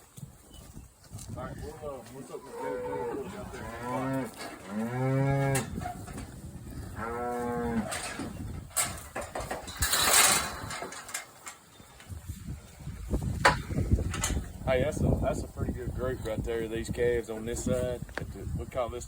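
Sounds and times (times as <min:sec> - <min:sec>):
cattle mooing: 0:02.2 - 0:05.9, 0:06.8 - 0:08.2.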